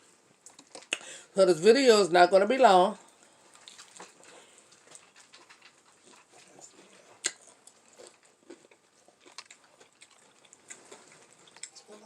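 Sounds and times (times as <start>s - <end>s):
person chewing: 0.4s - 1.1s, 3.2s - 12.0s.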